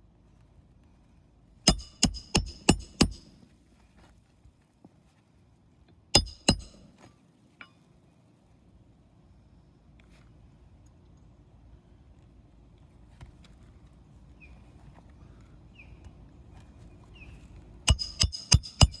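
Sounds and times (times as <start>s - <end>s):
hammer striking roofing nails: 1.7s - 3.4s, 6.2s - 6.9s, 17.9s - 19.0s.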